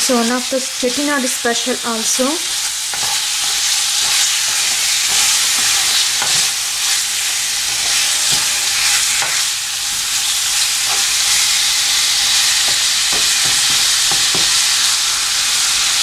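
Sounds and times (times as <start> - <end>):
chicken sizzling in oil: 0.0 - 16.0
spatula scraping pan: 2.4 - 15.7.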